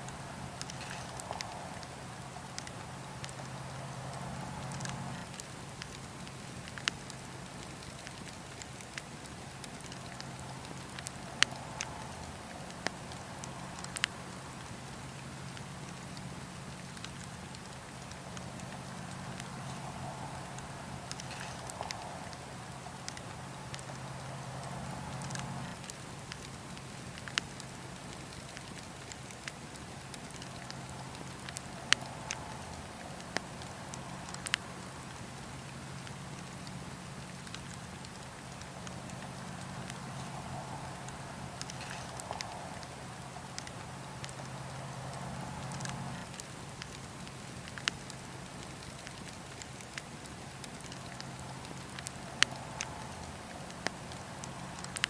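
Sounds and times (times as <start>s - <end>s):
low hum: 0.0s - 8.5s, 9.3s - 27.8s
faint hiss: 0.0s - 55.0s
wood fire crackling: 0.0s - 55.0s.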